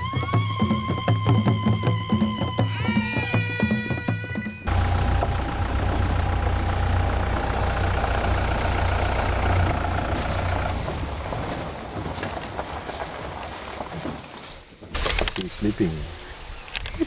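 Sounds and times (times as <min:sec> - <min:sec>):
jeep engine rumbling: 0:04.7 - 0:14.3.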